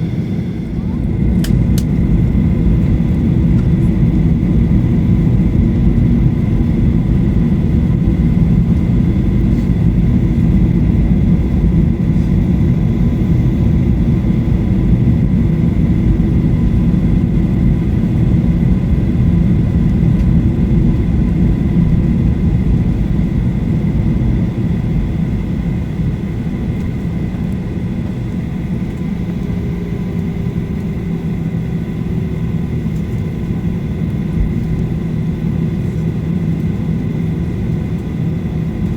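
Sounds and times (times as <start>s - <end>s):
steady whining tones: 0.0s - 7.0s
airplane cabin engine rumble: 0.0s - 38.9s.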